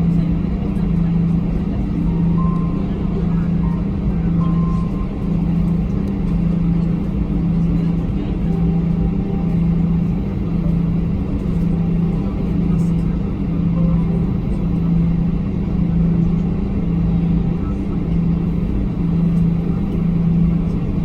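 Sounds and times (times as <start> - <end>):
airplane engines idling rumble: 0.0 - 21.0.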